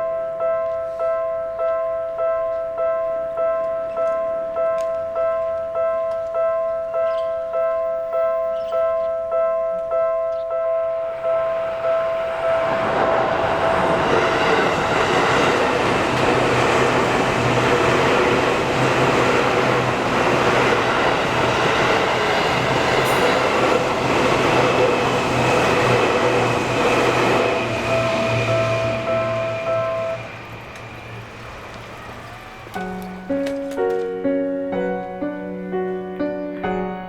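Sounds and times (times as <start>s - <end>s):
level crossing warning bell: 0.0s - 33.3s
train wheels rushing on rail: 11.1s - 34.1s.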